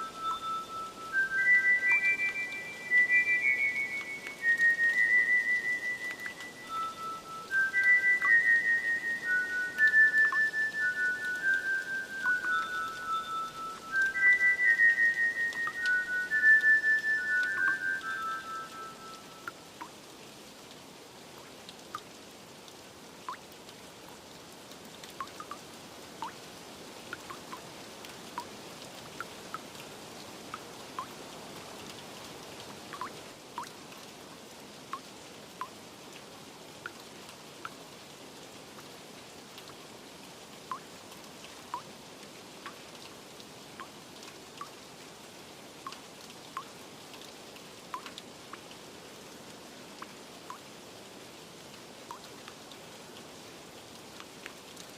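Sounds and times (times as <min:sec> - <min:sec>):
water drops plinking: 0:00.0 - 0:20.0, 0:25.2 - 0:25.6, 0:33.0 - 0:33.8, 0:52.1 - 0:52.3
rain hissing: 0:00.0 - 0:54.9.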